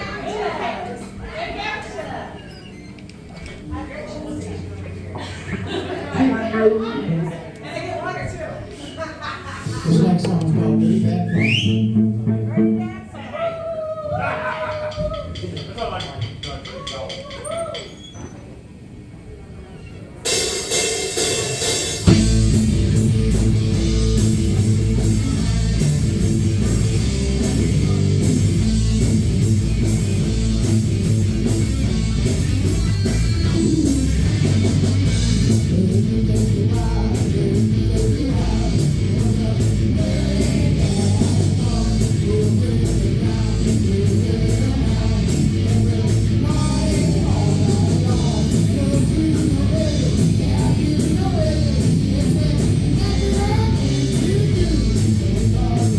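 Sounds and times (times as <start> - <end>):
rock band playing live: 20.2 - 55.9
person singing: 32.8 - 55.9.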